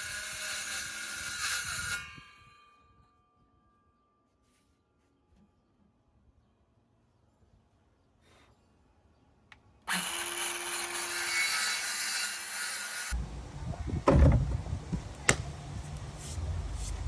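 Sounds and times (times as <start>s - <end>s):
power saw cutting wood: 0.0s - 2.2s, 9.9s - 13.2s
low rumble: 13.2s - 17.0s
sharp knocks: 14.0s - 14.6s.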